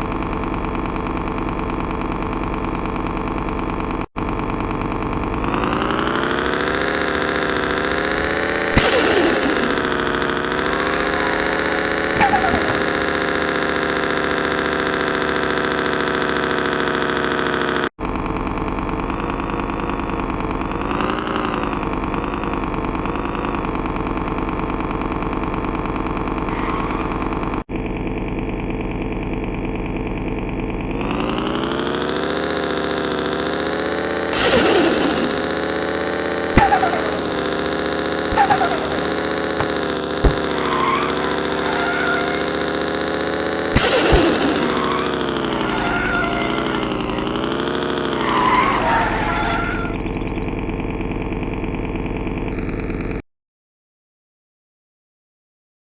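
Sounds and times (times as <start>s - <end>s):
car engine revving: 0.0s - 53.1s
sharp knocks or pops: 34.3s - 41.8s.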